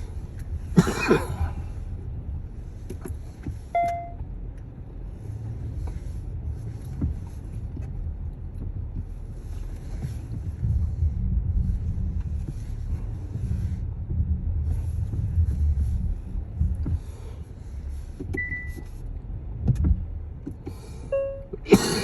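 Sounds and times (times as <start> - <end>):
car engine and road noise: 0.0 - 22.0
short high beep: 3.8 - 4.2.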